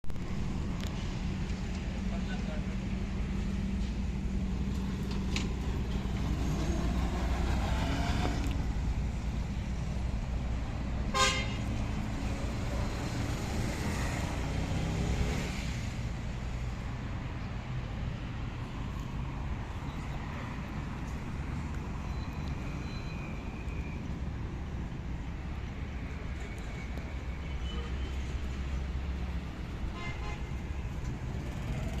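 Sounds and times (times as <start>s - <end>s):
engine low rumble: 0.0s - 29.9s
vehicle horn toot: 11.1s - 11.7s, 30.0s - 30.5s.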